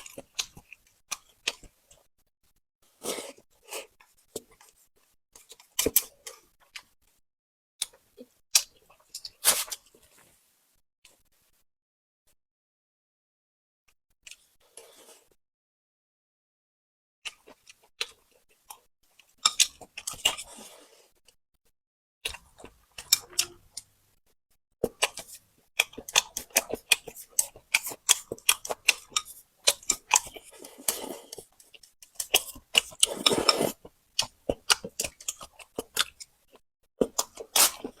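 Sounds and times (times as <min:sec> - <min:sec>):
person crunching and chewing: 0:17.3 - 0:21.0, 0:22.2 - 0:23.9, 0:24.8 - 0:36.4, 0:37.0 - 0:38.0.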